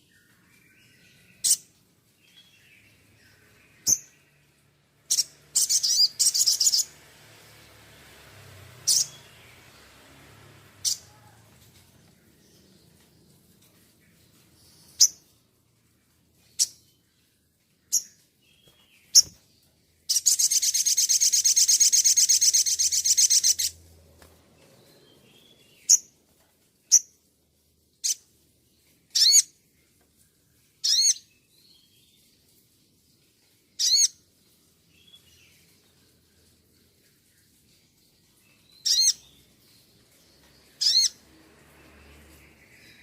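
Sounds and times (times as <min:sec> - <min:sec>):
songbird trilling and calling: 0:05.1 - 0:07.0, 0:08.8 - 0:09.3, 0:20.1 - 0:23.8, 0:29.1 - 0:29.5, 0:30.8 - 0:31.3, 0:33.8 - 0:34.2, 0:38.5 - 0:39.5, 0:40.6 - 0:41.2.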